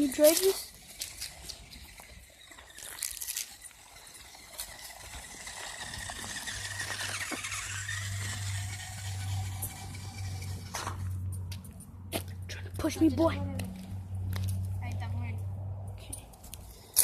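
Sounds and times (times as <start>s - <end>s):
small electric motor whining: 0.0s - 11.1s
low hum: 3.6s - 12.1s.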